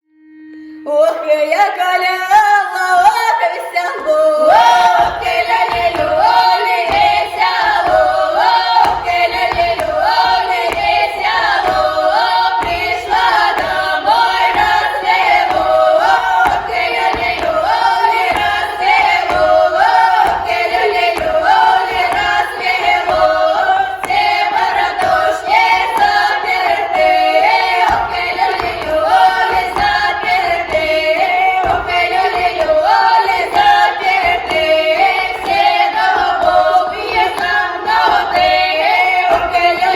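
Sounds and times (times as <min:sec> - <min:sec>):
women singing in chorus: 0:00.3 - 0:39.9.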